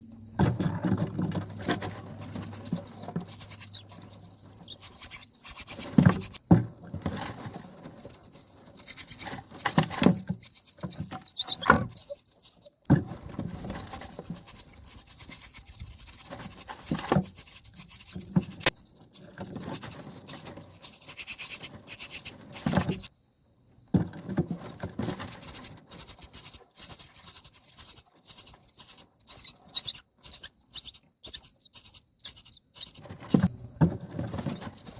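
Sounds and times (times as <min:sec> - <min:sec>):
nestlings begging chatter: 0:00.7 - 0:06.5, 0:07.1 - 0:23.1, 0:24.4 - 0:33.5, 0:34.1 - 0:34.9.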